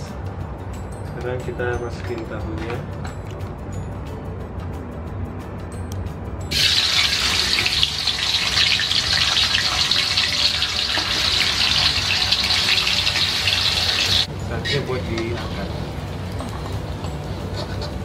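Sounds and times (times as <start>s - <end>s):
tofu sizzling in hot oil: 6.5s - 14.3s.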